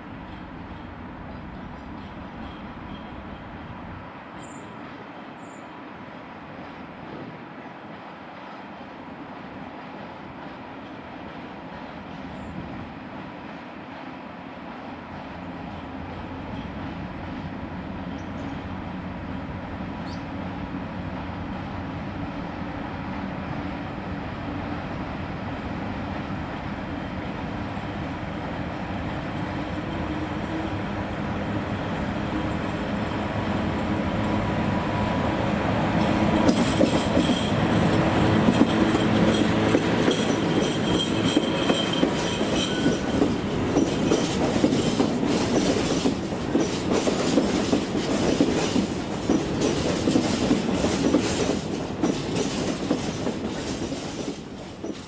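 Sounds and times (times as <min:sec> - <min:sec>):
electric locomotive approaching: 0:00.0 - 0:55.0
wheels clacking over rail joints: 0:29.3 - 0:55.0.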